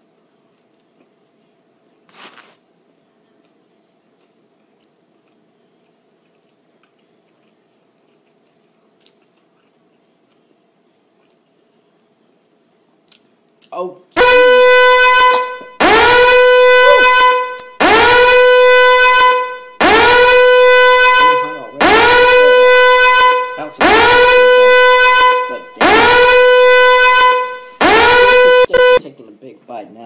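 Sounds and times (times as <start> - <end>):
buzzy horn blasts: 14.2 - 29.1.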